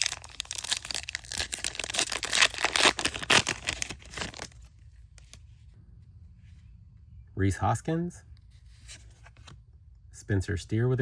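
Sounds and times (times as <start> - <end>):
wrapper tearing and crumpling: 0.0 - 4.7.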